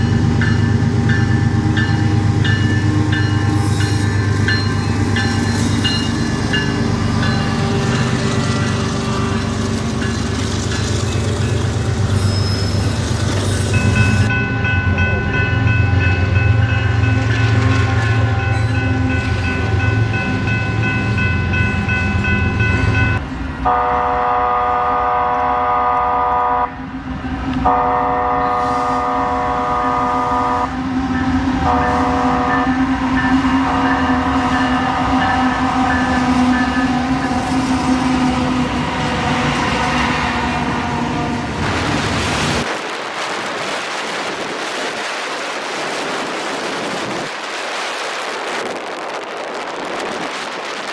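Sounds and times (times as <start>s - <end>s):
train bell ringing: 0.0s - 24.6s, 27.7s - 38.5s
diesel locomotive rumble: 0.0s - 50.9s.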